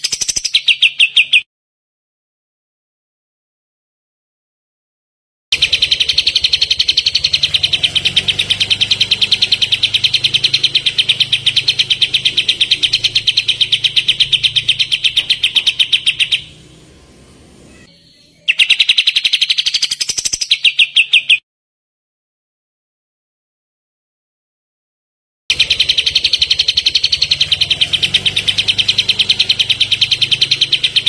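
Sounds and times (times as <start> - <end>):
bird rapid rattling song: 0.0 - 1.4, 5.6 - 17.0, 18.5 - 21.4, 25.5 - 31.0.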